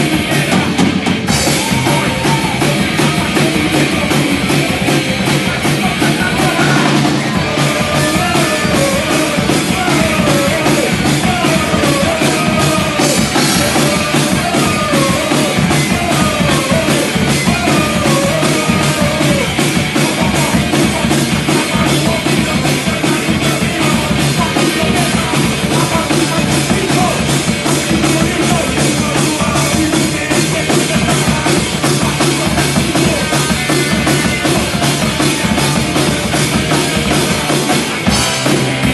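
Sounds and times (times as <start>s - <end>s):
drum kit rapid beat: 0.0s - 38.9s
fast punk rock music: 0.0s - 38.9s.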